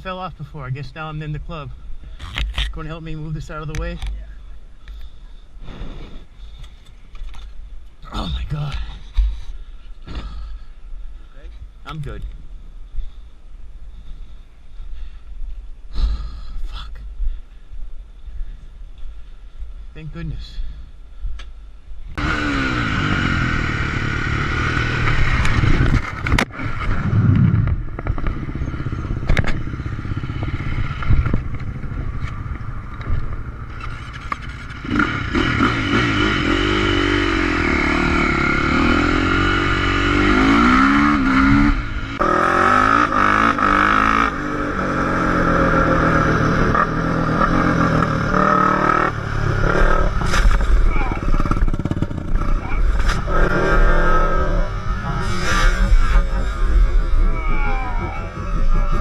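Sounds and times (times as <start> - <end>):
steady rushing noise: 21.6 - 59.0
motorcycle engines revving: 22.2 - 59.0
sharp crack: 49.7 - 53.6.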